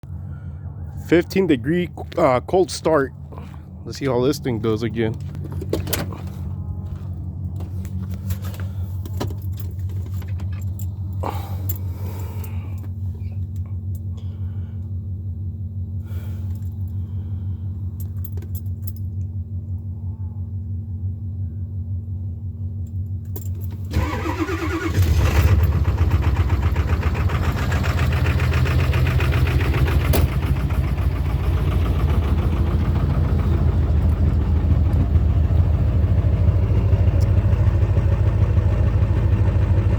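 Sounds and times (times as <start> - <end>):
diesel engine clatter: 0.0 - 20.0, 22.1 - 39.9
low engine hum: 0.0 - 39.9
engine cranking and starting: 23.5 - 39.9.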